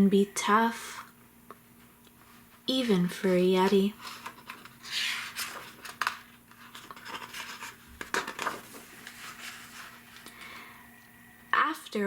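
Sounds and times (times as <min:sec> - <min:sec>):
faint steady hum: 0:00.0 - 0:12.0
paper pages rustling: 0:02.2 - 0:10.3.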